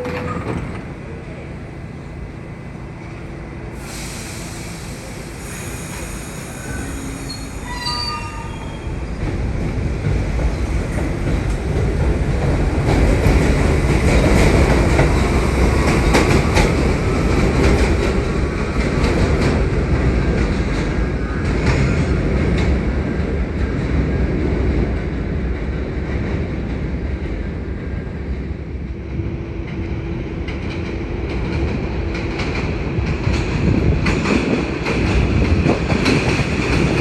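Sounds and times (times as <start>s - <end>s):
subway train approaching: 0.0s - 37.0s
high wheel squeals: 5.2s - 9.0s.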